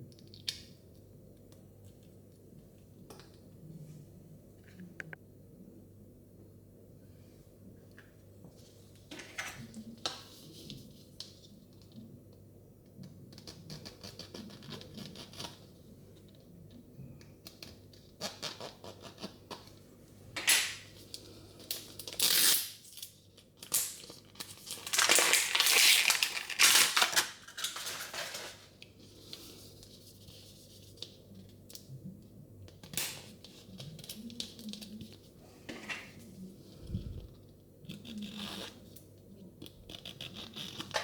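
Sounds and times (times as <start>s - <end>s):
plastic wrapping tearing and crinkling: 21.7s - 23.0s, 23.6s - 28.7s.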